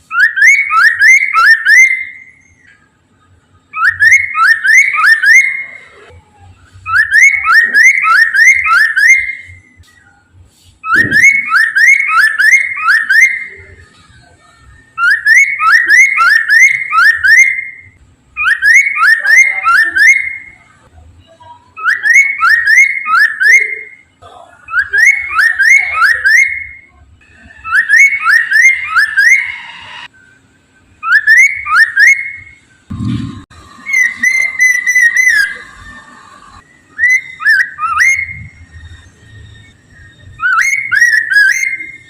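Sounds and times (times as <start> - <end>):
bird singing whistled phrases: 0.0 - 2.8, 3.7 - 6.0, 6.8 - 10.2, 10.8 - 13.8, 14.9 - 20.7, 21.8 - 24.0, 24.7 - 26.9, 27.6 - 30.1, 31.0 - 32.6, 33.8 - 36.0, 36.6 - 42.0.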